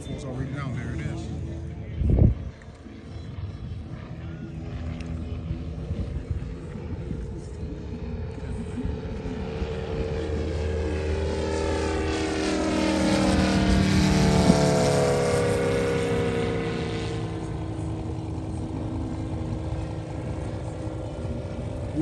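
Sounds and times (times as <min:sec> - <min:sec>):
model plane engine passing: 0:00.0 - 0:22.0.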